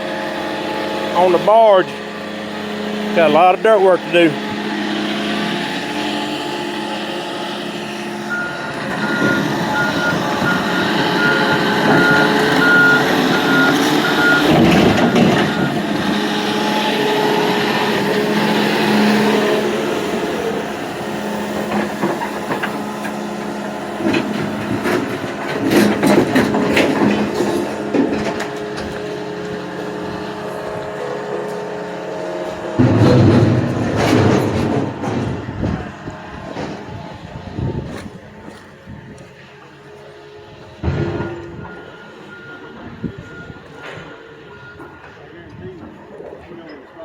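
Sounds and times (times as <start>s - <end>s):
heavy machinery running: 0.0s - 47.0s
backup alarm beeping: 8.3s - 16.2s, 41.0s - 45.0s.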